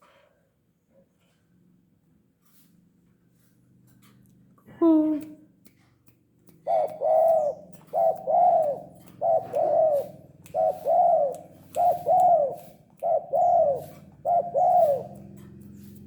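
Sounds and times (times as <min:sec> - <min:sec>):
dove cooing: 0:06.6 - 0:16.0.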